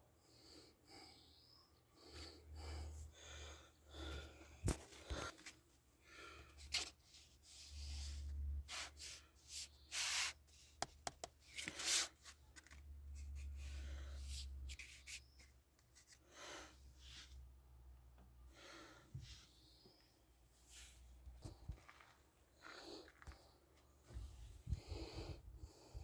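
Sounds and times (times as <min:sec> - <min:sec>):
rubbing and handling noises: 0:06.6 - 0:16.3.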